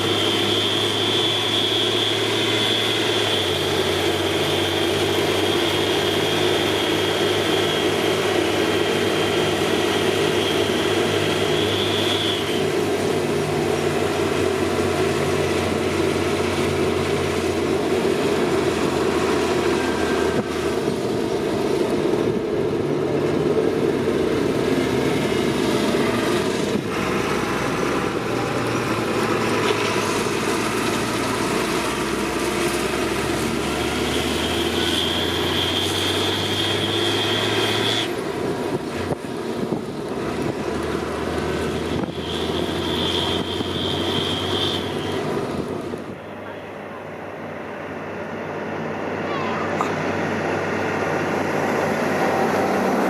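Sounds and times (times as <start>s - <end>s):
high turbo whistle: 0.0s - 13.0s, 33.0s - 38.2s, 41.7s - 45.4s
tractor engine running under load: 0.0s - 53.0s.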